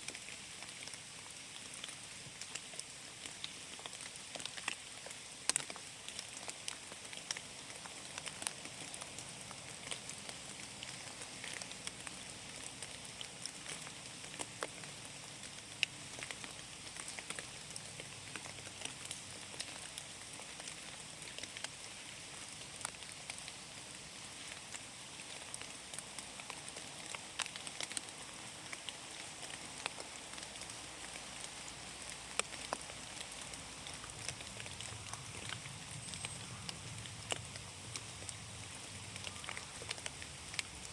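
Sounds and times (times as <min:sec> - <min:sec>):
rain hissing in forest: 0:00.0 - 0:40.9
raindrops ticking: 0:00.0 - 0:40.9.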